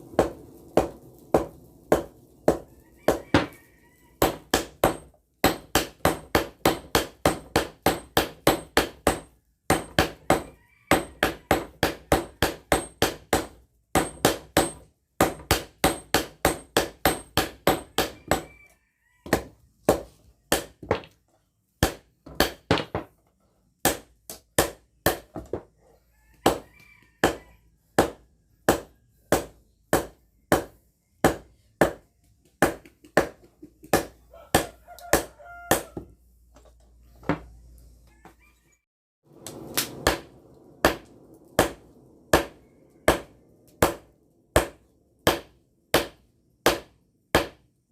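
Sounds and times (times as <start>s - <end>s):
hammer striking steel: 4.2s - 18.5s, 39.4s - 47.6s.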